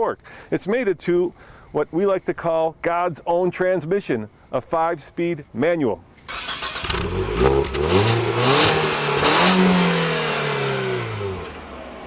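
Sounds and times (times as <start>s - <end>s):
car engine revving: 6.3s - 12.0s.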